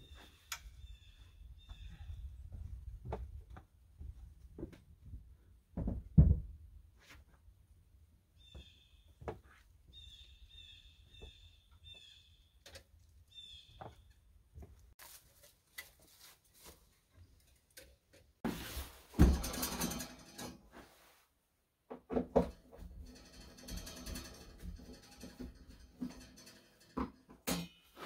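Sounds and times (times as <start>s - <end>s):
bird chirping: 0.0s - 2.3s, 9.9s - 12.6s, 13.3s - 14.1s
loud rustling clatter: 18.5s - 20.9s, 22.4s - 28.0s.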